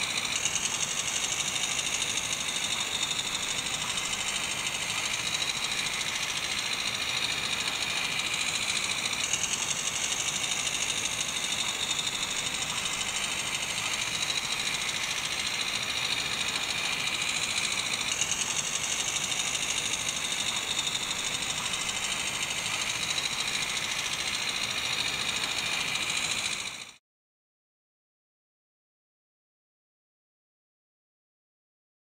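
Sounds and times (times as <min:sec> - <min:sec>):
small motor whirring: 0:00.0 - 0:27.0.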